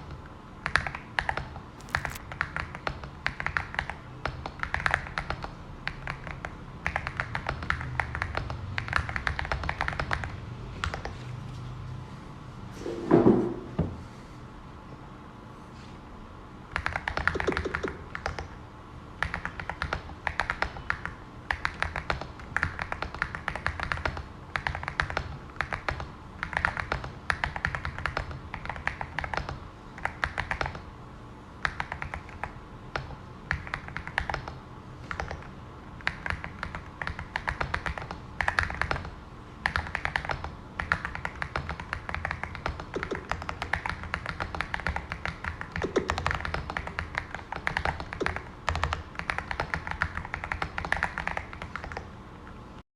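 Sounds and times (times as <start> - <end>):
mechanical keyboard typing: 0.6 - 11.1, 16.7 - 18.6, 19.2 - 30.8, 31.6 - 52.1
thump: 12.9 - 14.0.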